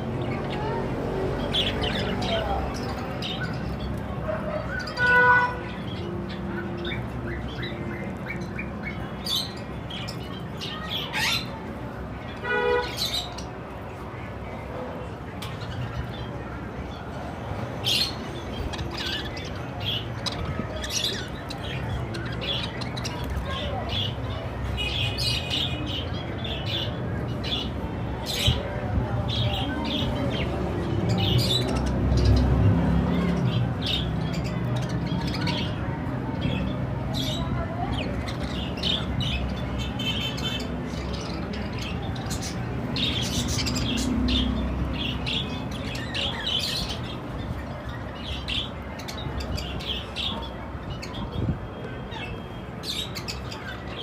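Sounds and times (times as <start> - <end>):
budgerigars chirping: 17.8 - 28.6, 33.2 - 51.3.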